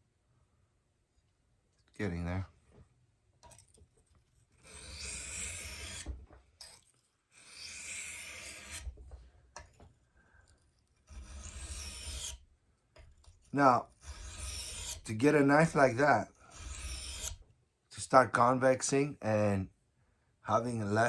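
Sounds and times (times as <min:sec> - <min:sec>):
knife scraping on whetstone: 0:04.5 - 0:09.0, 0:11.0 - 0:12.4, 0:14.0 - 0:15.9, 0:16.5 - 0:17.4.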